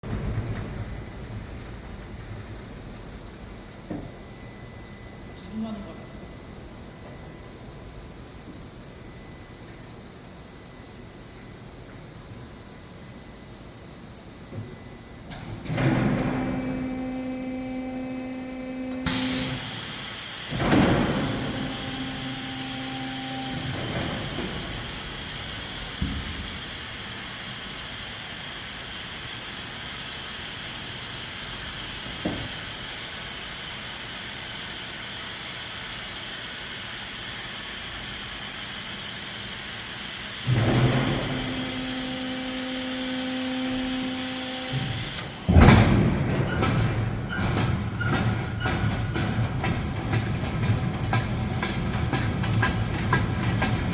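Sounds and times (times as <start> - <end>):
small electric motor humming: 16.7 - 30.6, 41.1 - 45.4.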